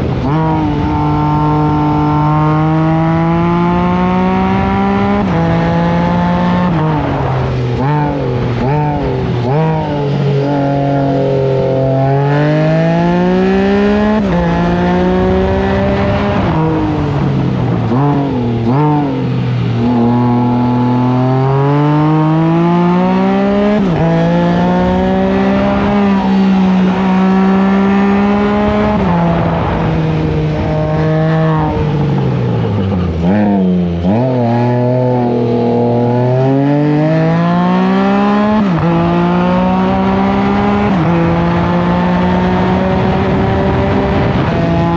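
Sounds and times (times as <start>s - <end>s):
engine accelerating through gears: 0.0s - 44.9s.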